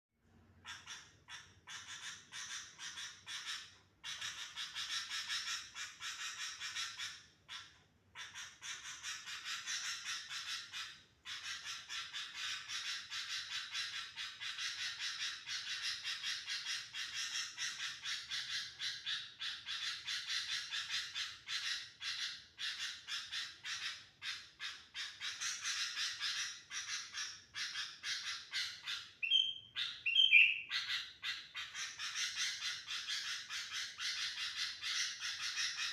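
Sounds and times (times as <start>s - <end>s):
bird whistled call: 29.2s - 31.0s.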